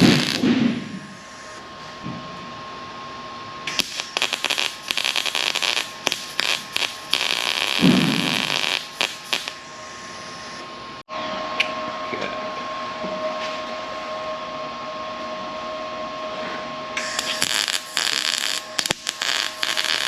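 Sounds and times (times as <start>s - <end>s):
welder crackling: 0.0s - 1.6s, 3.7s - 10.6s, 17.0s - 20.0s.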